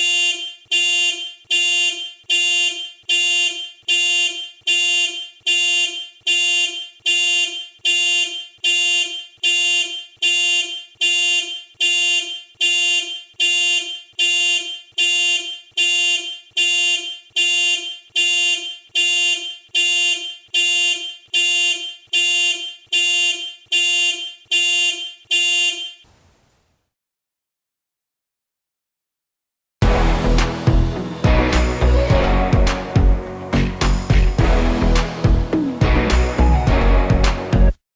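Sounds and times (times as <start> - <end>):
car horn honking: 0.0 - 26.2, 29.8 - 37.7.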